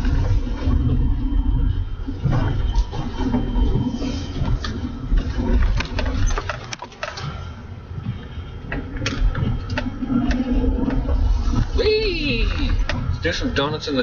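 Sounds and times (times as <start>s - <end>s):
pickup truck engine rumble: 0.0s - 14.0s
sharp clicks and knocks: 2.2s - 7.4s, 8.0s - 11.7s.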